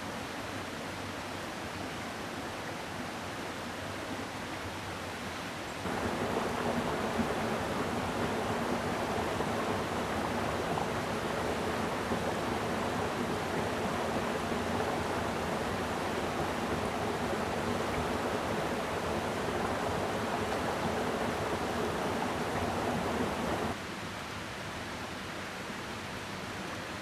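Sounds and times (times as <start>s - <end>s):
stream water rushing: 5.8s - 23.8s.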